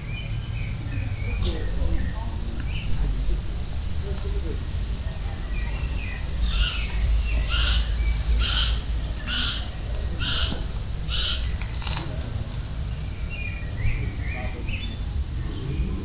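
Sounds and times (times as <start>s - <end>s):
bird harsh scratchy call: 6.4s - 12.2s.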